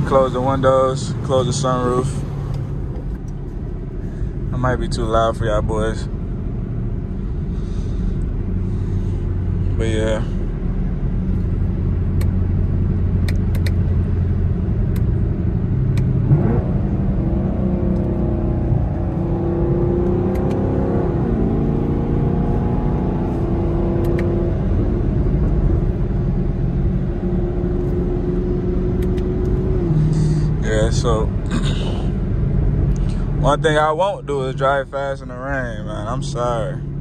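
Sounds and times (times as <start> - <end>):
car engine and exhaust accelerating: 0.0 - 37.0
road rumble: 0.0 - 37.0.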